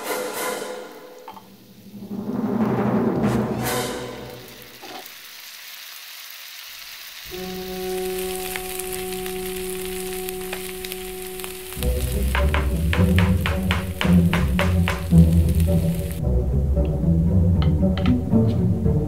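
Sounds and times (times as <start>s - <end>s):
orchestral music: 0.0s - 4.8s, 7.3s - 19.0s
paste sizzling in oil: 3.6s - 16.2s.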